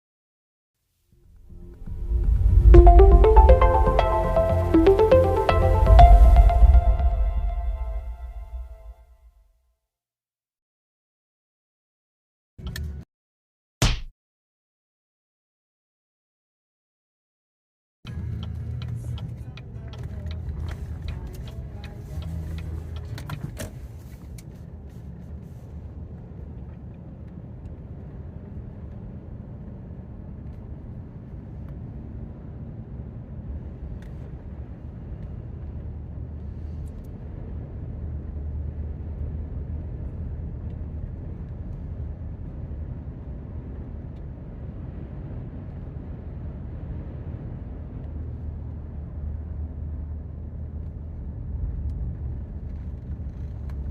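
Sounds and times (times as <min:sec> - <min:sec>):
vehicle engine and road noise: 0:18.1 - 0:53.9.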